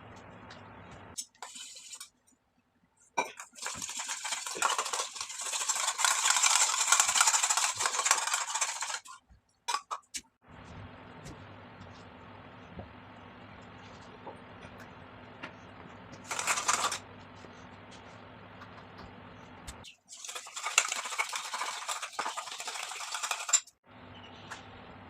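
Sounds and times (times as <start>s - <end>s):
crackly scraping in a bowl: 3.4s - 9.2s, 20.2s - 23.8s.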